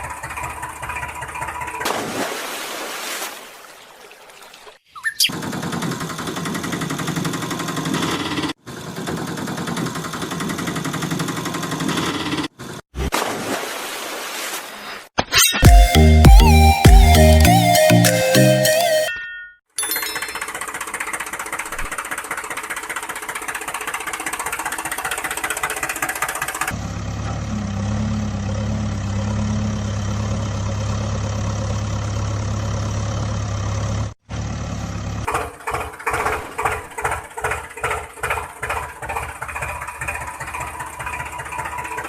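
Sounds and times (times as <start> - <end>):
vehicle engine running: 0.0 - 1.8, 5.3 - 12.5, 20.4 - 42.0.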